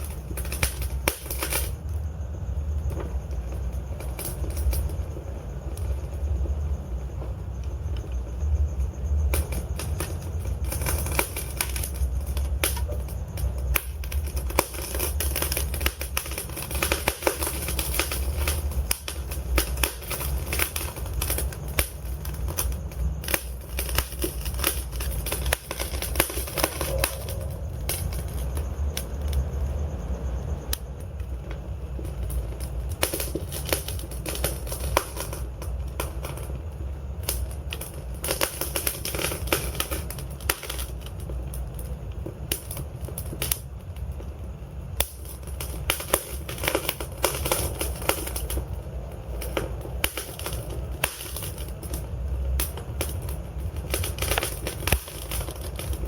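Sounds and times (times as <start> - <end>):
low fire rumble: 0.0 - 56.0
wood fire crackling and popping: 0.0 - 56.0.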